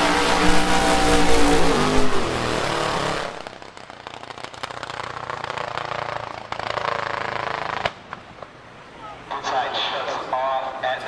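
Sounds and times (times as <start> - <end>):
race car engine: 0.0 - 3.9
faint engine running: 0.0 - 8.0
scattered ticks and pops: 3.6 - 6.8.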